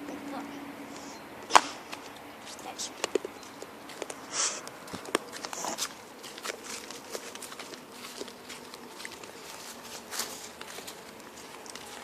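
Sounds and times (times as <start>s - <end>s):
footsteps on outdoor path: 0.9s - 12.0s.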